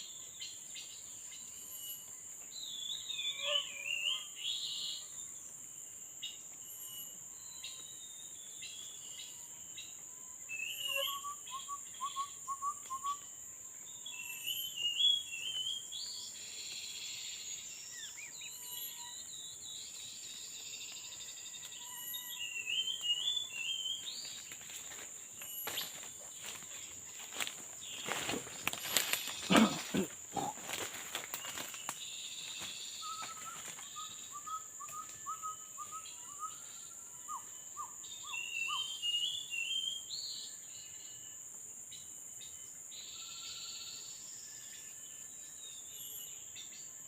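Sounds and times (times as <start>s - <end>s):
high-pitched insect drone: 4.2s - 47.0s
birds calling chirp phrases: 10.6s - 13.2s, 27.2s - 31.6s.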